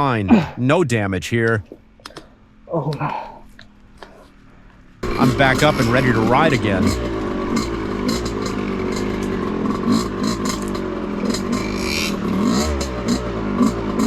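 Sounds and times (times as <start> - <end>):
dirt bike engine revving: 5.0 - 14.0.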